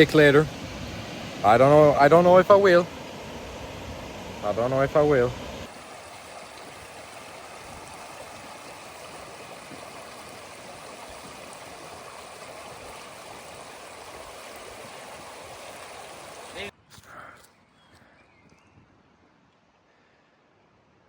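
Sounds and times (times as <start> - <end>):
river water flowing: 0.0 - 16.7.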